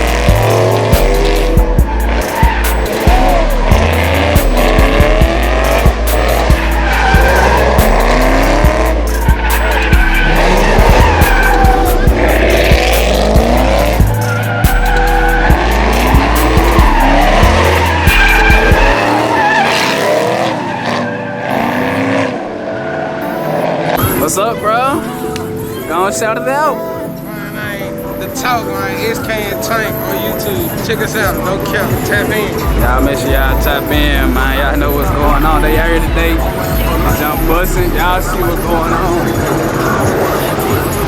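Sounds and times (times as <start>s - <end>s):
loud music with heavy bass: 0.0s - 22.3s, 31.1s - 41.0s
car engines revving: 0.0s - 26.6s, 27.6s - 41.0s
tyres squealing: 0.0s - 41.0s.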